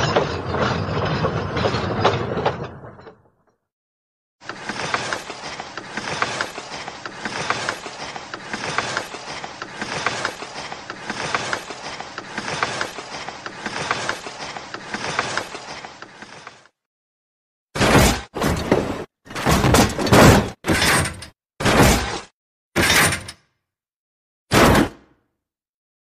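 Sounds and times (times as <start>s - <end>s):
railway wheels clickety-clack: 4.4s - 16.6s.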